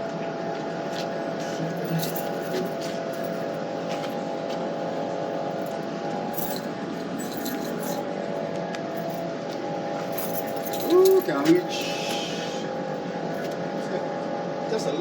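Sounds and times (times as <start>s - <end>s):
steady mechanical hum: 0.0s - 15.0s
faint metallic clinks: 7.2s - 8.0s.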